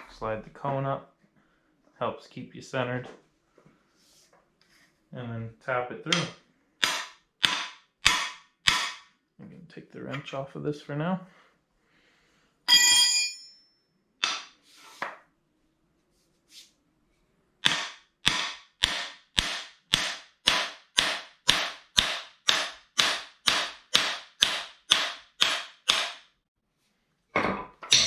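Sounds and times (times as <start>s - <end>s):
hammer striking metal tool: 6.1s - 9.1s, 14.2s - 14.6s, 17.6s - 26.3s.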